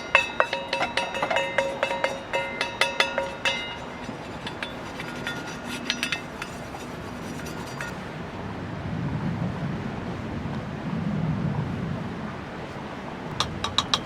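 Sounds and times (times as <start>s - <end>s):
metal objects clinking: 0.0s - 8.0s, 13.4s - 14.0s.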